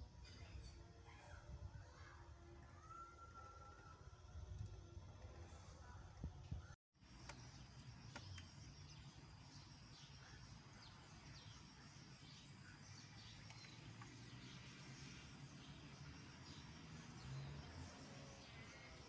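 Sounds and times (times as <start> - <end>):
faint bird chirps: 7.1 - 19.0.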